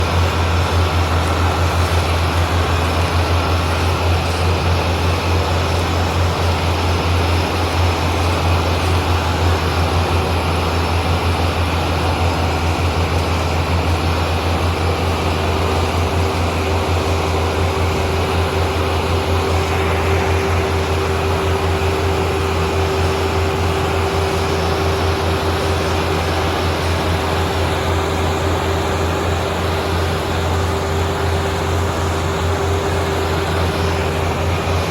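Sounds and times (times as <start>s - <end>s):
steady high whine: 0.0s - 34.9s
tractor diesel engine: 0.0s - 34.9s.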